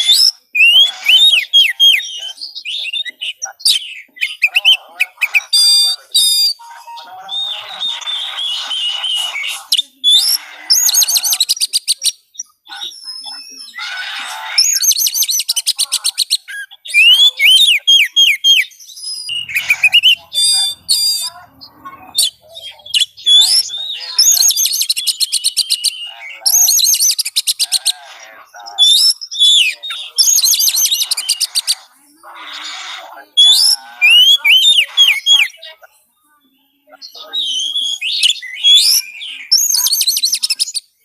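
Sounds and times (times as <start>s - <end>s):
songbird singing varied song: 14.6s - 41.0s.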